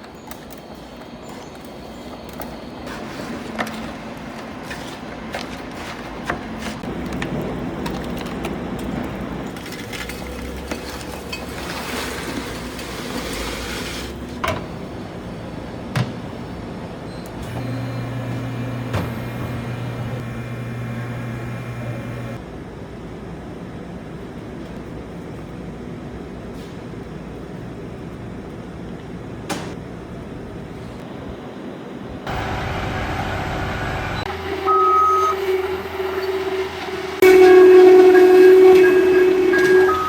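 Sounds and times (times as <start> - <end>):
noisy mechanical background: 0.0 - 37.2
machine low hum: 14.2 - 22.4.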